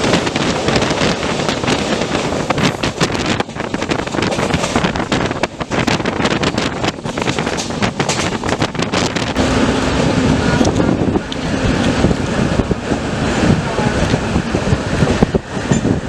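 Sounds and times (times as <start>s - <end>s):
express train running: 0.0s - 16.0s
wind buffeting microphone: 0.0s - 16.0s
steady low hum: 9.4s - 16.0s.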